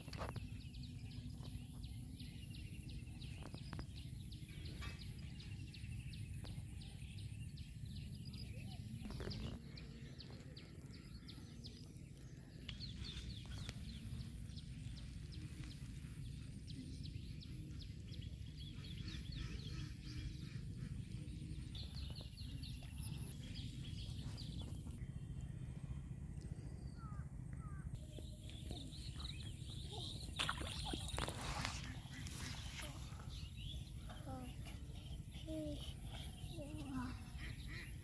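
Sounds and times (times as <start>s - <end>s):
small birds chirping: 0.0s - 25.6s, 26.4s - 38.0s
low background rumble: 4.0s - 31.1s.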